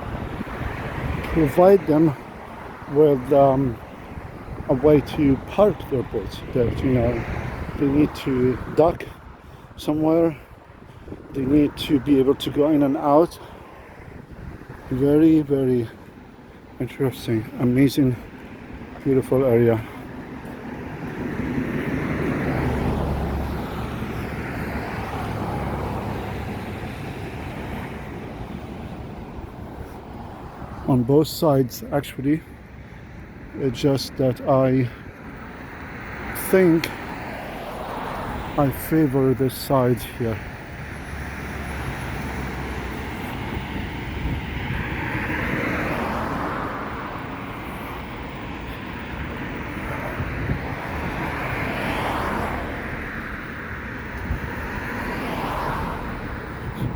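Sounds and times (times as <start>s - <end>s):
passing vehicle engine rumbling: 0.0s - 56.9s.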